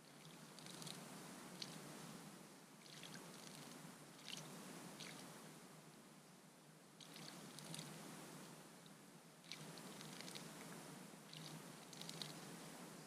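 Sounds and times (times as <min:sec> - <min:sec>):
bird splashing in water: 0:02.8 - 0:05.3, 0:07.0 - 0:08.0, 0:09.4 - 0:10.6, 0:11.3 - 0:12.4.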